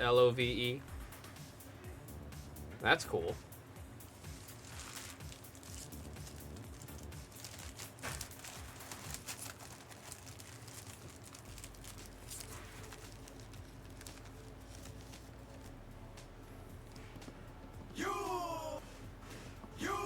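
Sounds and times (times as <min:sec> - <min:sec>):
card pack wrappers crinkling: 0:04.2 - 0:15.7
cards being shuffled: 0:04.2 - 0:15.8.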